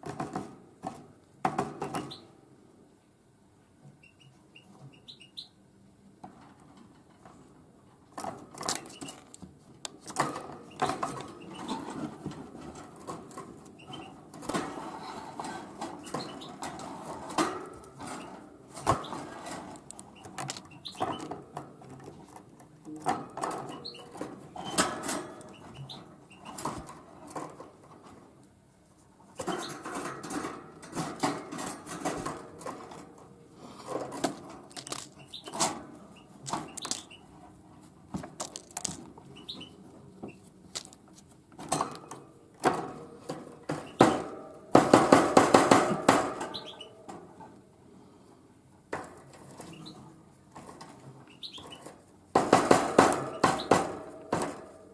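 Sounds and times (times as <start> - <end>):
faint bird chirps: 4.0 - 5.6, 51.3 - 51.8
bird pecking seeds: 33.6 - 35.6, 36.2 - 37.3, 38.2 - 39.7.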